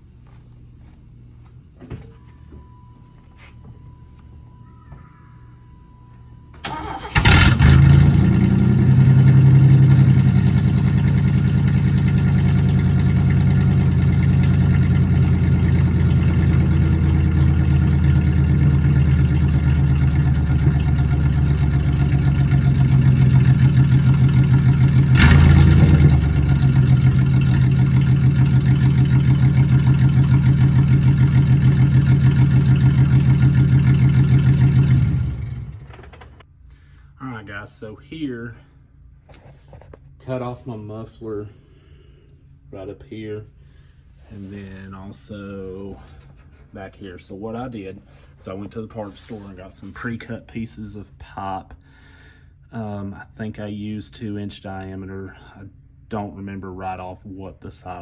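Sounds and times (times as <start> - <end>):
car engine cranking and idling rough: 6.6 - 36.4.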